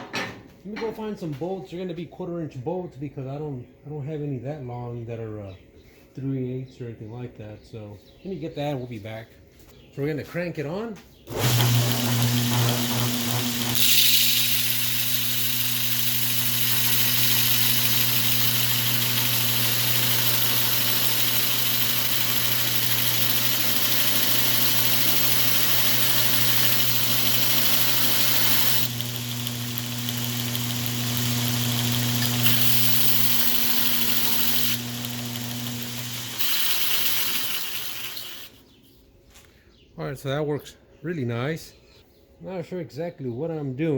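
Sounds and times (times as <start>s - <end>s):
electric motor hum: 11.3s - 38.6s.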